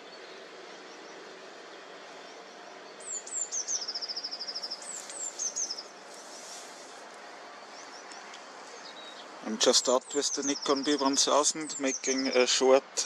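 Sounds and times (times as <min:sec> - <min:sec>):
faint outdoor hiss: 0:00.0 - 0:13.0
songbird trilling song: 0:02.1 - 0:06.0, 0:07.6 - 0:12.6.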